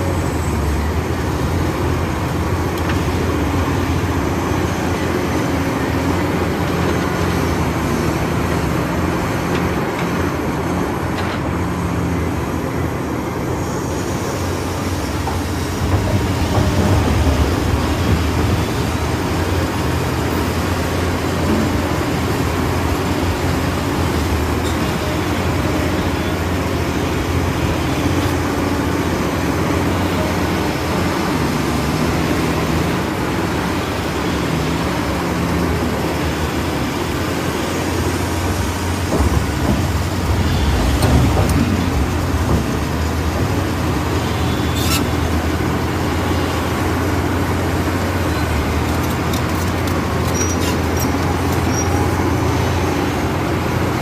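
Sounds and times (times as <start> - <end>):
model excavator motors running: 32.0 - 54.0.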